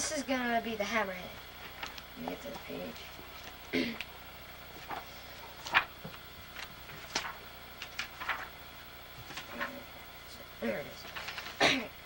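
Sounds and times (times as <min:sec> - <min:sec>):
book pages turning: 0:01.5 - 0:10.0, 0:10.8 - 0:11.6.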